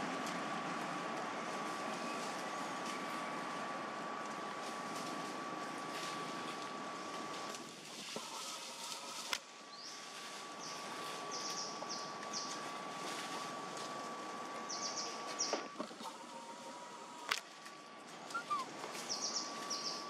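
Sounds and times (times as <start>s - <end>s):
bird chirping: 14.7s - 15.6s, 18.3s - 20.0s.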